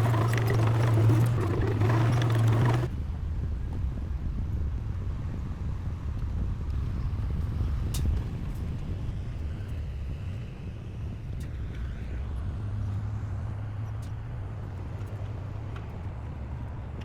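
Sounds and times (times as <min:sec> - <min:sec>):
heavy diesel engine running: 0:00.0 - 0:02.9.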